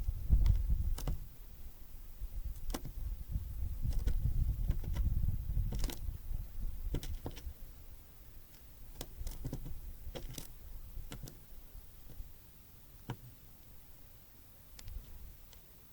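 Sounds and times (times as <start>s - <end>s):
birds pecking at a feeder: 0.0s - 1.4s, 2.4s - 7.7s, 8.4s - 13.8s
wind rumble on microphone: 0.0s - 8.0s, 14.8s - 15.4s.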